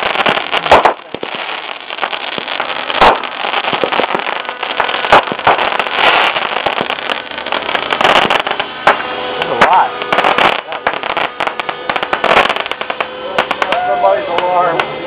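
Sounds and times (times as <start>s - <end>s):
fireworks bangs: 0.0s - 15.0s
fireworks crackling: 0.0s - 15.0s
small fireworks cracks: 0.0s - 15.0s.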